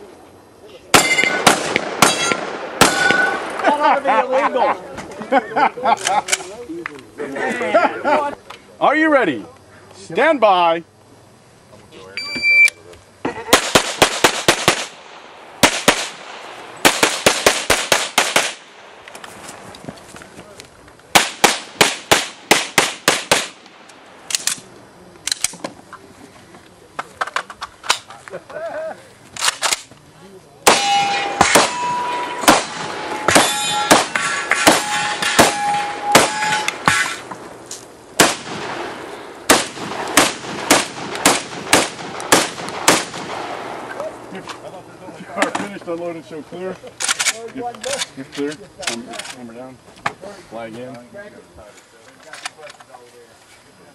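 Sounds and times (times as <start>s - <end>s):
steel plates ringing: 1.0s - 1.4s, 30.7s - 37.2s
shotgun shots fired rapidly: 1.0s - 3.3s, 13.6s - 15.0s, 15.6s - 18.6s, 21.2s - 23.6s, 30.7s - 36.7s, 39.5s - 43.4s
rapid gunfire: 13.5s - 18.7s, 21.2s - 23.6s, 38.2s - 43.6s.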